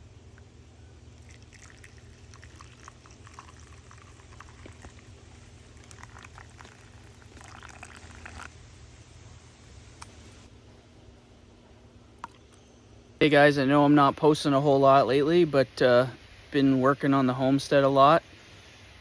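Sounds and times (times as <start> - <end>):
steady low hum: 0.0 - 19.0
liquid pouring and splashing: 1.2 - 8.5.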